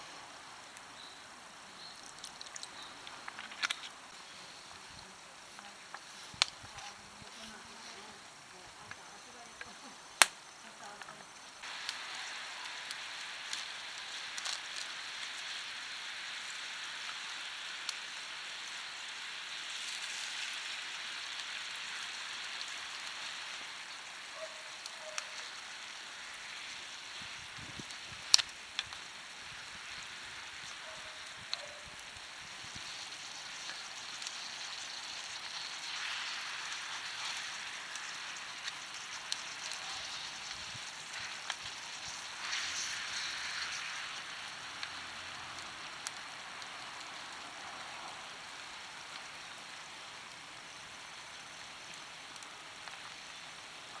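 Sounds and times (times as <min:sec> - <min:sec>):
meat sizzling in a skillet: 0:00.0 - 0:54.0
sharp clicks and pops: 0:01.8 - 0:07.6, 0:08.8 - 0:12.0, 0:27.5 - 0:29.1.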